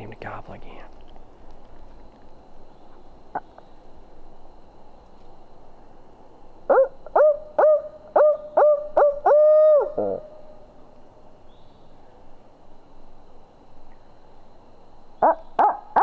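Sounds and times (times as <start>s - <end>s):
owl call hoots: 6.7s - 10.8s, 15.2s - 16.0s.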